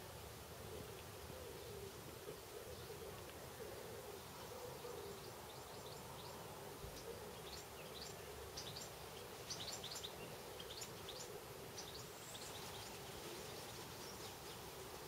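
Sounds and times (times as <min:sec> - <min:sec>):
small birds chirping: 0:04.9 - 0:15.0.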